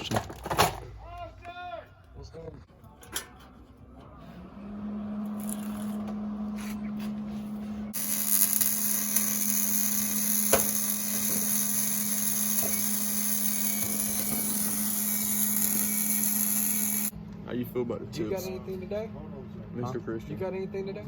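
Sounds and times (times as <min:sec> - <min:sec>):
power tool whining: 0:07.9 - 0:17.1.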